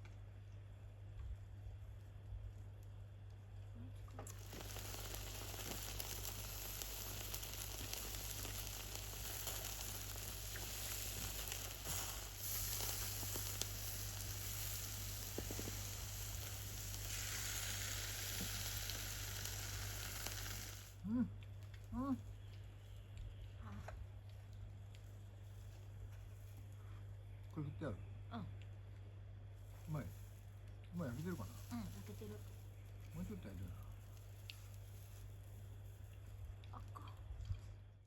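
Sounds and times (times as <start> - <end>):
food sizzling in a pan: 4.3 - 21.0, 31.0 - 32.7.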